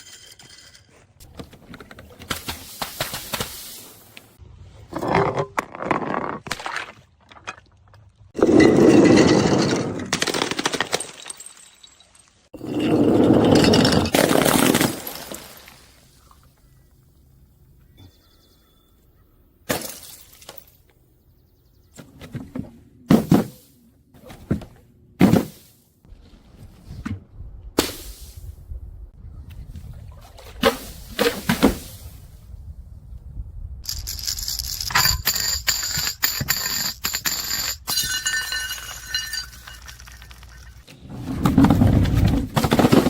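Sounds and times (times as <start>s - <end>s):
glass breaking: 9.4s - 12.5s, 13.6s - 15.8s, 34.8s - 40.8s
high ringing tones: 34.9s - 40.6s.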